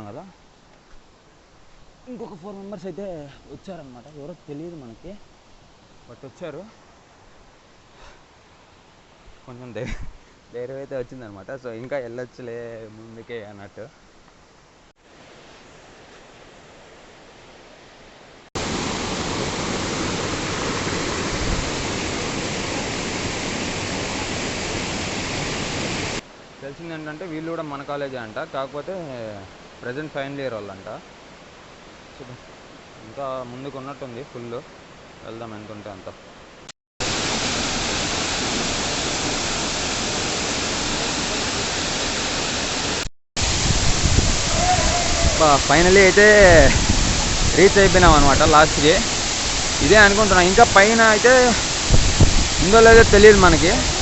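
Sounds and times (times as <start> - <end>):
rushing water: 14.7 - 54.0.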